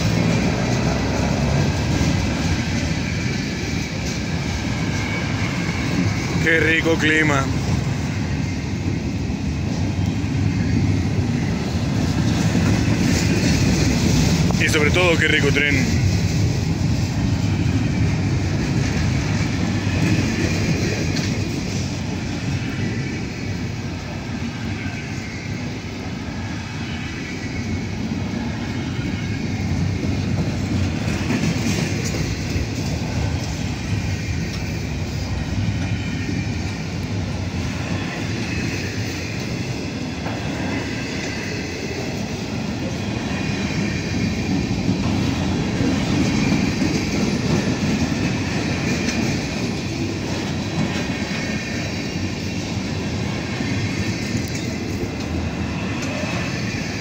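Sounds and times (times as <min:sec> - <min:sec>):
freight train wheels rumbling on rail: 0:00.0 - 0:57.0.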